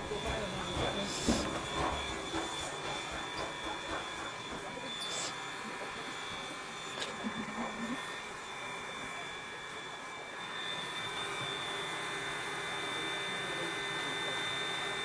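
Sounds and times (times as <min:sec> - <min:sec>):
steam train running: 0:00.0 - 0:15.0.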